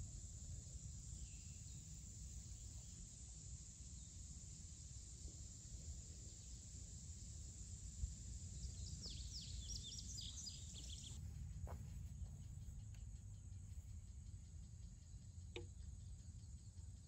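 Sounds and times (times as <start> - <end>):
high insect drone: 0.0 - 17.0
birds chirping: 8.6 - 13.0.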